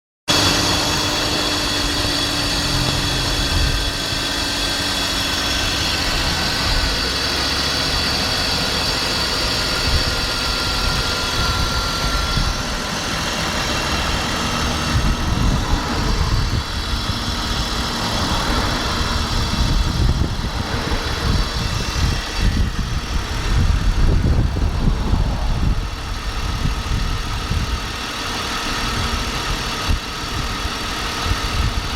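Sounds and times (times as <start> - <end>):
car engine idling with metallic noise: 0.3 - 31.9
steady whine: 0.3 - 31.9.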